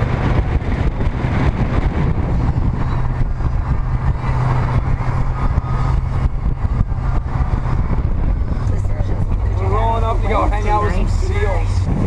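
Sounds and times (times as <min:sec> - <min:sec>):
motorboat engine drone: 0:00.0 - 0:12.0.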